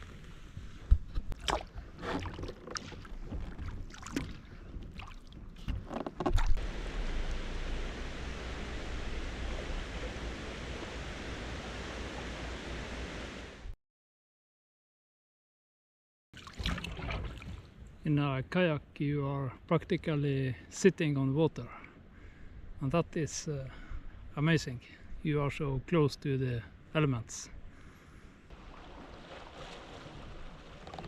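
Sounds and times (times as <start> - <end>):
paddle splashing in water: 0.7 - 11.4, 16.4 - 17.8, 28.5 - 31.0
rushing noise with low rumble: 6.6 - 13.7.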